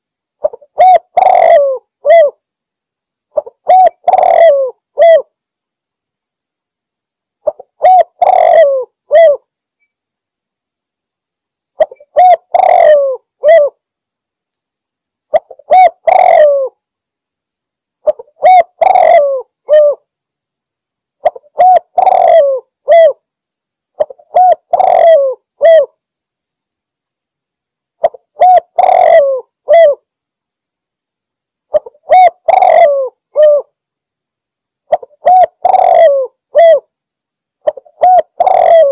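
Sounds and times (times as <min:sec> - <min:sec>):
dove cooing: 0:00.4 - 0:02.4, 0:03.4 - 0:05.3, 0:07.4 - 0:09.5, 0:11.8 - 0:13.8, 0:15.3 - 0:16.8, 0:18.0 - 0:20.0, 0:21.2 - 0:23.2, 0:24.0 - 0:26.0, 0:28.0 - 0:30.0, 0:31.7 - 0:33.7, 0:34.9 - 0:36.9, 0:37.6 - 0:38.9.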